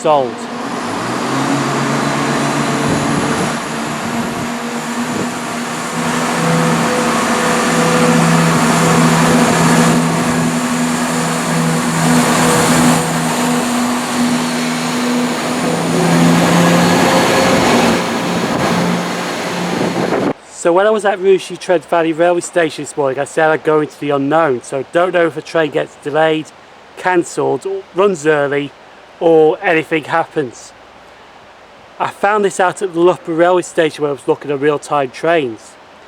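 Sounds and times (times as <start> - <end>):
diesel train engine humming: 0.0 - 20.4
rushing noise: 0.0 - 20.4.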